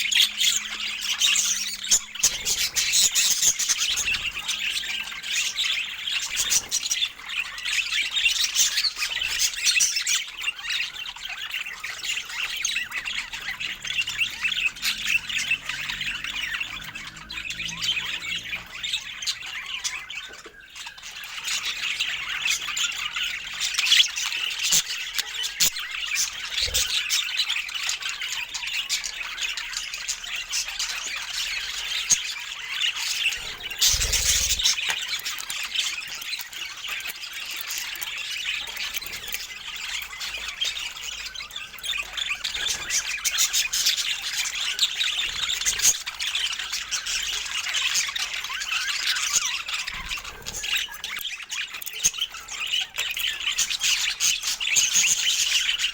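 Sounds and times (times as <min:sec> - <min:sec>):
budgerigars chattering and squawking: 0:00.0 - 0:55.9.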